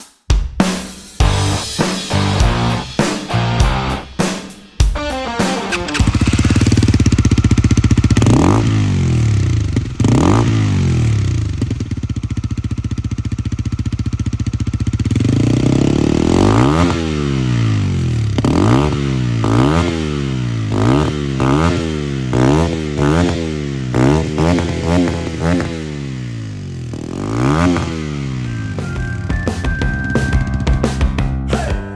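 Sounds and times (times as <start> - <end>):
motorcycle engine idling and revving: 5.7 - 31.2.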